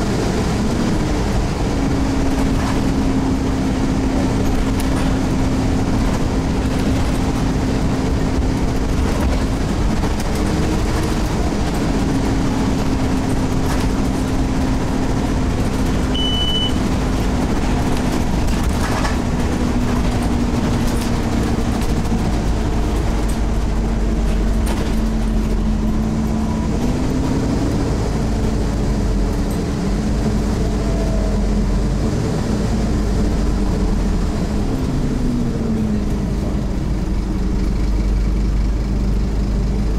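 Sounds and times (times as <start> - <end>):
bus diesel engine running: 0.0 - 39.9
heavy road rumble: 0.0 - 39.9
short high beep: 16.1 - 16.8.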